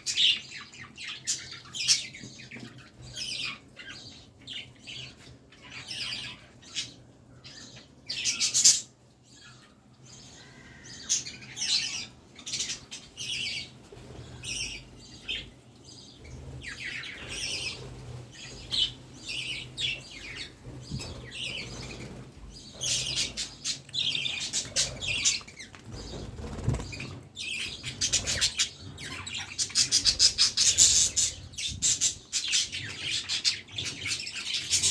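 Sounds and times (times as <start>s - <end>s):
budgerigars chirping: 16.2s - 34.9s.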